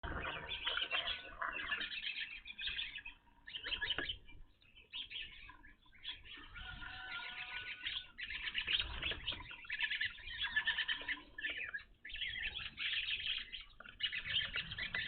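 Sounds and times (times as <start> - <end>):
flock of birds chirping: 0.0 - 15.0.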